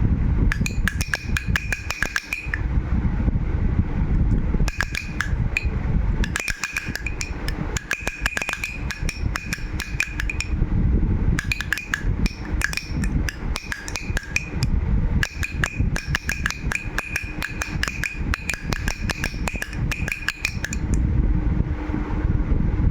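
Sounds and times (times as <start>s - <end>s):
toy rattle shaken: 0.5s - 2.7s, 4.7s - 10.6s, 11.4s - 21.0s.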